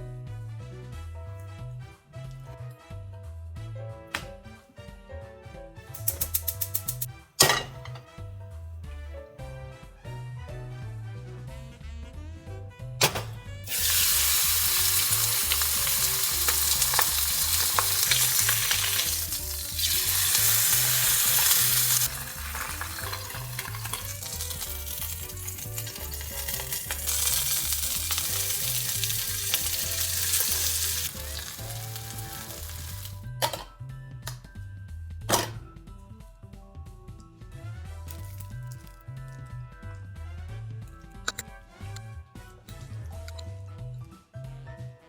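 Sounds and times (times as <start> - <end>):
soft background music: 0.0 - 45.0
food sizzling in oil: 13.7 - 33.2.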